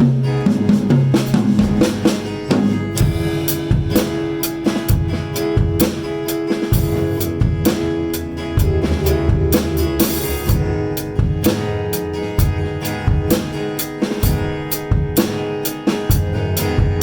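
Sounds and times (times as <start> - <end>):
drum kit beat with cymbals: 0.0 - 17.0
electric guitar: 0.0 - 17.0
keyboard playing: 6.7 - 13.2.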